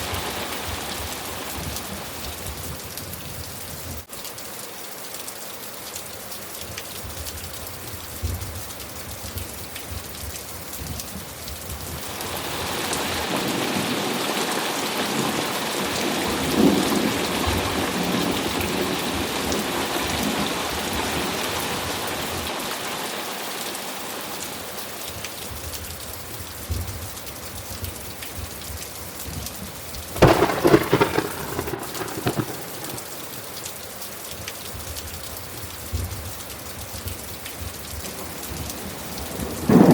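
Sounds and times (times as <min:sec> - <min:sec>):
steady rain: 0:00.0 - 0:39.9
crackling thunderclap: 0:30.1 - 0:33.7, 0:38.5 - 0:39.9
rolling thunder rumble: 0:30.2 - 0:33.6, 0:39.2 - 0:39.9.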